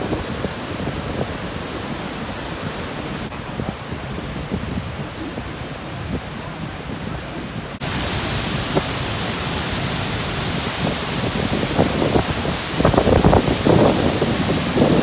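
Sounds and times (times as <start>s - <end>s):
waterfall rushing: 0.0s - 3.3s, 7.8s - 15.0s.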